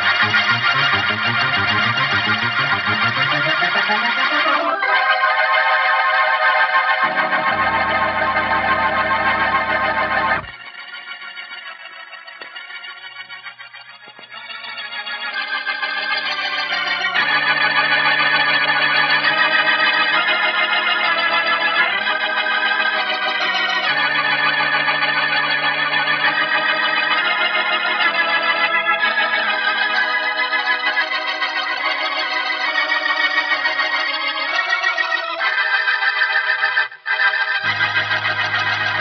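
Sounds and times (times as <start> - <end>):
organ playing sustained chords: 0.0 - 39.0.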